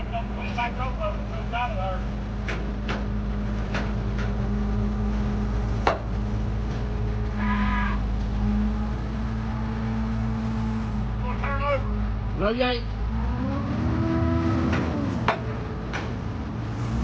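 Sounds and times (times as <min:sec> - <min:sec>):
crane engine running: 0:00.0 - 0:17.0
sharp knocks: 0:05.8 - 0:06.1
short drawn-out call: 0:07.3 - 0:08.1.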